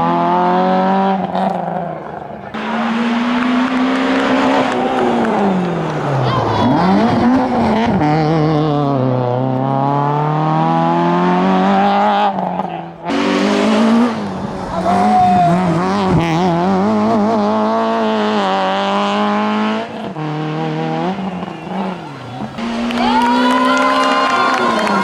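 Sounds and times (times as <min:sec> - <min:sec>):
car engine revving high: 0:00.0 - 0:25.0
tyre squeal: 0:14.3 - 0:17.2.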